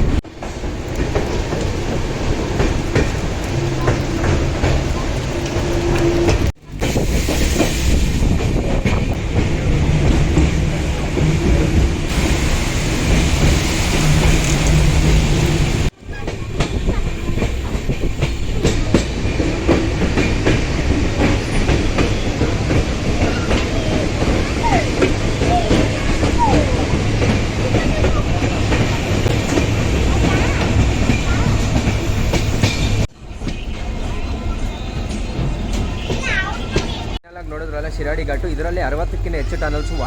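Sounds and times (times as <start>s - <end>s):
train rumble from on board: 0.0s - 40.0s
wheels clacking over rail joints: 0.0s - 40.0s.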